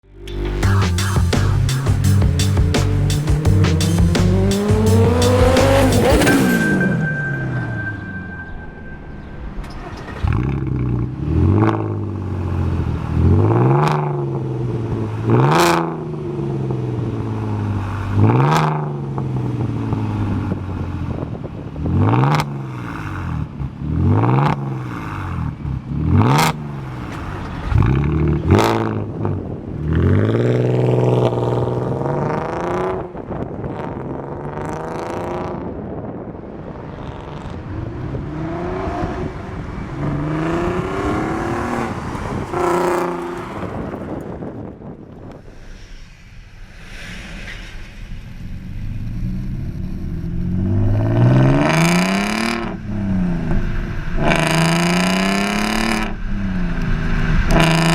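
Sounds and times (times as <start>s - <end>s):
car engine revving: 0.0s - 44.8s, 47.9s - 57.9s.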